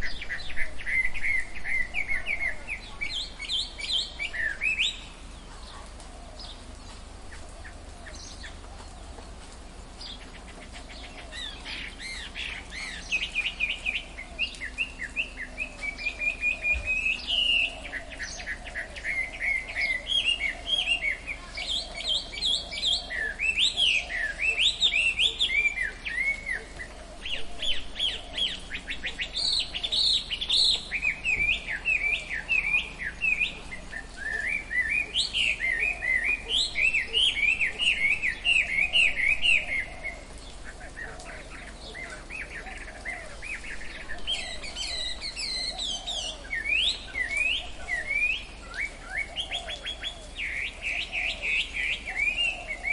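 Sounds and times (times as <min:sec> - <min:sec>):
forest birds chirping and calling: 0:00.0 - 0:52.9.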